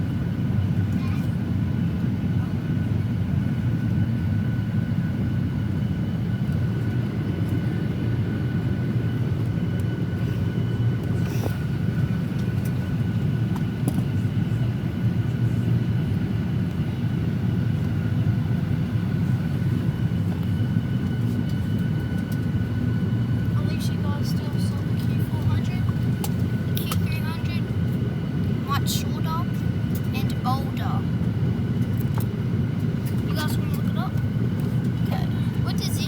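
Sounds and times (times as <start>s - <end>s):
aircraft cabin ventilation rushing: 0.0s - 36.0s
thin steady whine: 18.3s - 36.0s.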